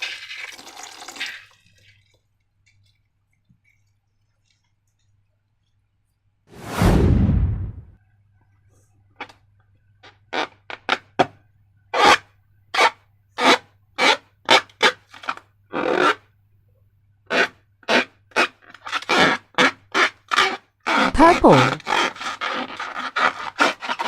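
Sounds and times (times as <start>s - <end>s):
rubbing slime and balloons: 6.5s - 7.9s, 17.3s - 24.0s.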